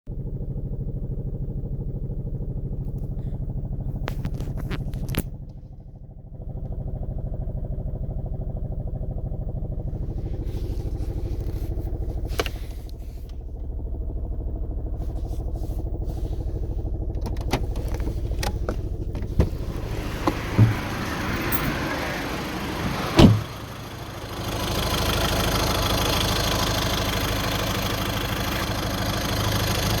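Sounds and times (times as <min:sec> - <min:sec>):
car engine running with rattle: 0:00.1 - 0:30.0
sharp engine knocks: 0:17.2 - 0:22.0, 0:22.8 - 0:23.7.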